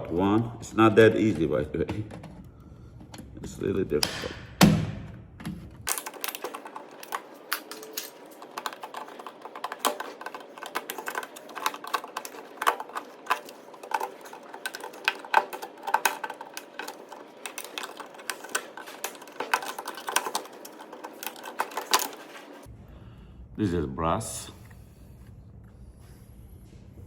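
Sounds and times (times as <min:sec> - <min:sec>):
hand tools clicking on metal: 0:05.9 - 0:22.7.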